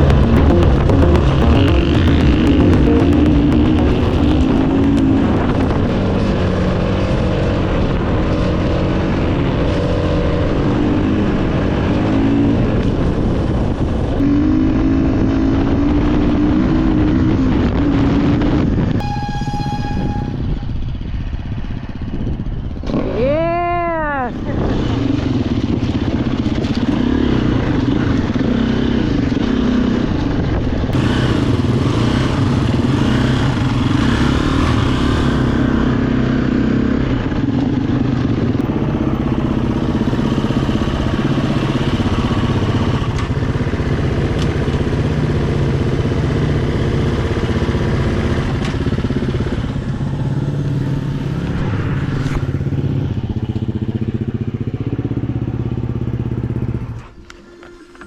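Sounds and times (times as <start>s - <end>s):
dirt bike engine revving: 0.0s - 9.2s, 31.0s - 52.8s.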